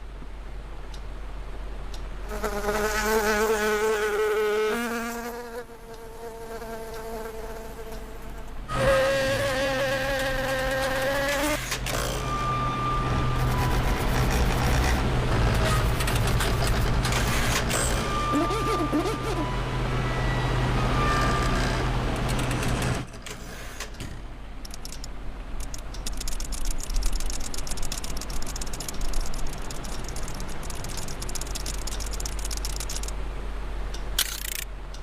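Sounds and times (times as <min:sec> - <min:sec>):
steady low hum: 0:00.0 - 0:35.0
buzzing whine wavering in pitch: 0:02.3 - 0:22.2, 0:25.6 - 0:33.1
scattered clicks: 0:22.2 - 0:33.2, 0:33.9 - 0:35.0.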